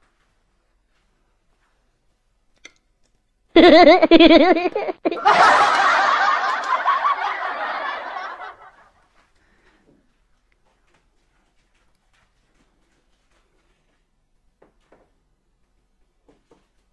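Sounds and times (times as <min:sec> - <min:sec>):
person snickering and giggling: 0:03.6 - 0:08.9.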